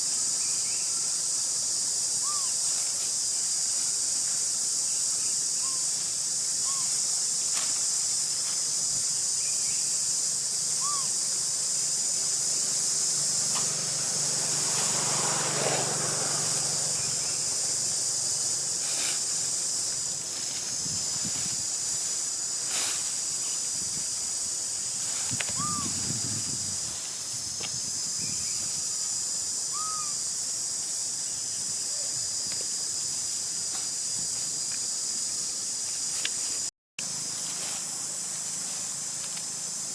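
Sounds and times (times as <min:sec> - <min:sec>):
insect chorus droning: 0:00.0 - 0:39.9
short chirping calls: 0:10.8 - 0:11.2, 0:25.5 - 0:26.0.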